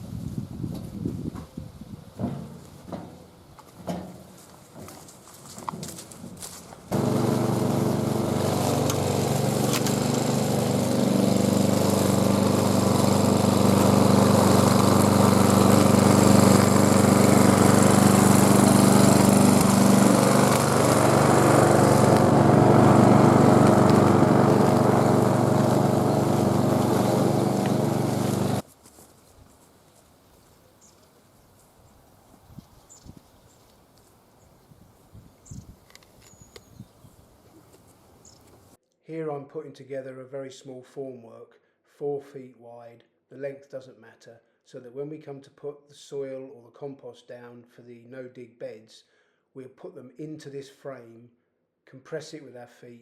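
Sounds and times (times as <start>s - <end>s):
small engine running: 5.9s - 28.6s.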